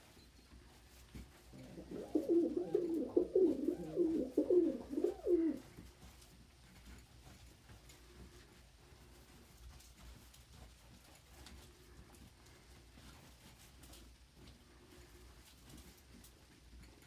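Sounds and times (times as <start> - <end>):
pigeon cooing: 1.5 - 5.7.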